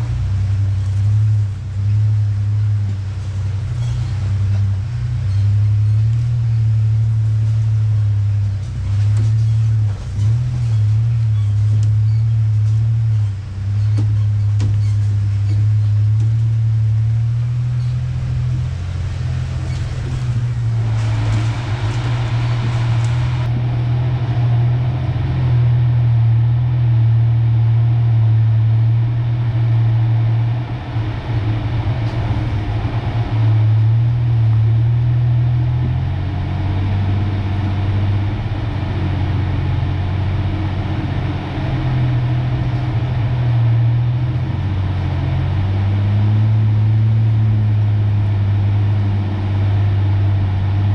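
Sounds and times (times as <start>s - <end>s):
pickup engine droning: 0.0s - 50.9s
tyres hissing on loose ground: 18.6s - 23.5s.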